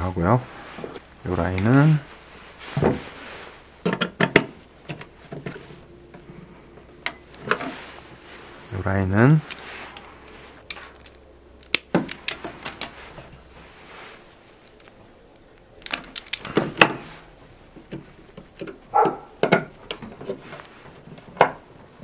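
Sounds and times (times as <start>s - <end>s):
wire strippers clicking: 14.5s - 17.0s.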